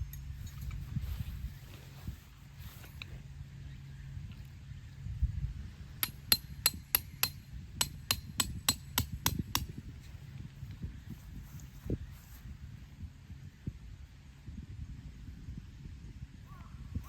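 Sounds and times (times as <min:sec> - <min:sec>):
hammer striking metal: 0:06.0 - 0:09.7.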